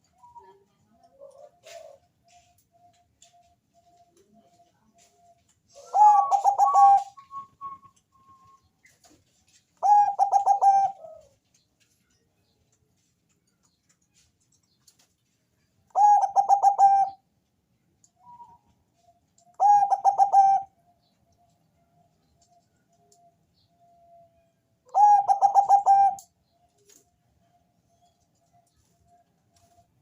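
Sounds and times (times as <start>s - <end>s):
dove cooing: 0.2s - 2.5s, 5.7s - 7.4s, 9.8s - 11.4s, 15.9s - 17.2s, 19.6s - 20.7s, 24.9s - 26.3s.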